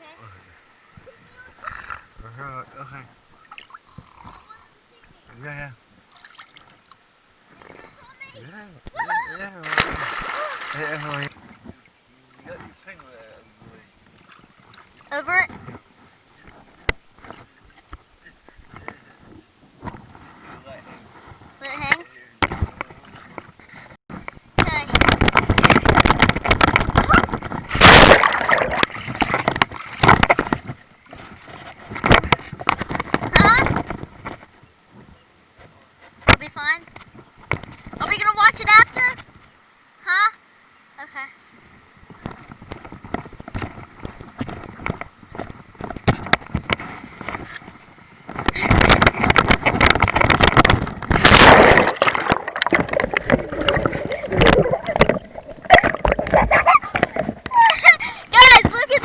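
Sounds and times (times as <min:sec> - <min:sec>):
pool water splashing and sloshing: 0:02.9 - 0:03.9, 0:06.1 - 0:07.0, 0:09.1 - 0:13.4, 0:14.0 - 0:15.5, 0:26.7 - 0:32.0, 0:49.5 - 0:59.0
water splashing and sloshing: 0:06.1 - 0:08.2, 0:09.4 - 0:13.3, 0:14.0 - 0:34.5, 0:42.1 - 0:59.0
loud splash: 0:09.6 - 0:11.3, 0:27.0 - 0:30.4, 0:50.6 - 0:56.9.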